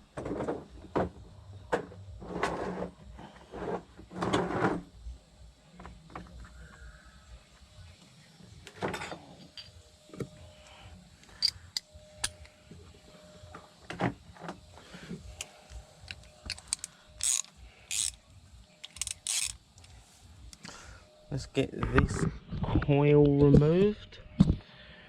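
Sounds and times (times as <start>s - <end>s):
metal tools clicking and clinking: 11.3s - 12.5s, 16.0s - 18.2s, 18.8s - 19.6s
tools rattling: 16.0s - 18.2s, 18.8s - 19.6s.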